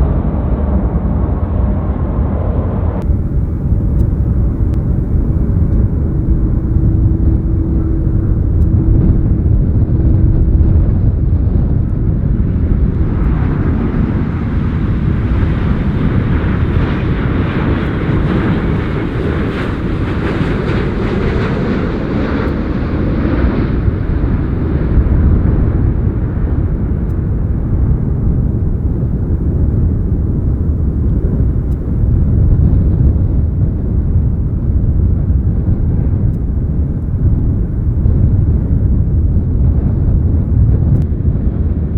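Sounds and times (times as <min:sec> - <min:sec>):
jet airliner passing low: 0:00.1 - 0:41.9.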